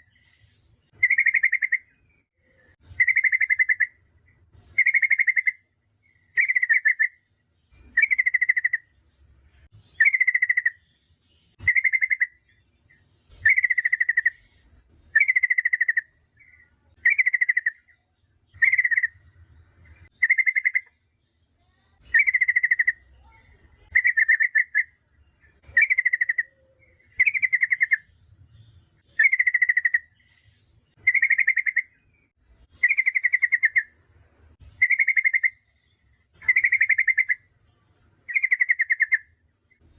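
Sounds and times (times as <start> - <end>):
bulbul chattering call: 0.0 - 1.9, 2.6 - 4.0, 4.6 - 9.0, 9.7 - 34.0, 34.6 - 39.9.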